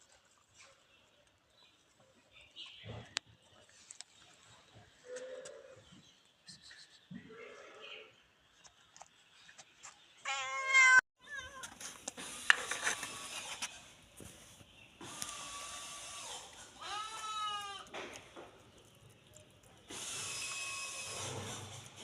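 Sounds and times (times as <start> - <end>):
cats meowing: 10.3 - 11.8, 16.8 - 18.0
clicks and scraping: 11.6 - 22.0.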